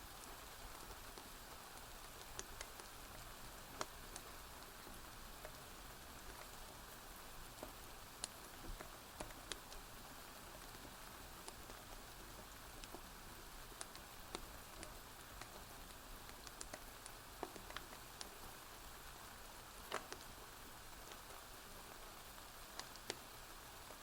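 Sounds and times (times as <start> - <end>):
steady rain falling: 0.0 - 24.0
wood fire crackling: 0.0 - 24.0.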